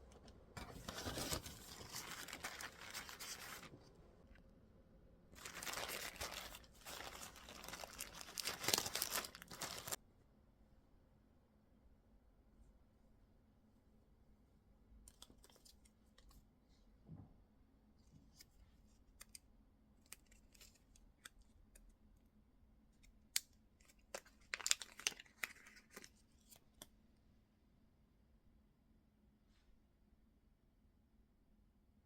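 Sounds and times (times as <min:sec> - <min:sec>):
crisp rustling of objects: 0:00.6 - 0:03.7, 0:05.4 - 0:10.0.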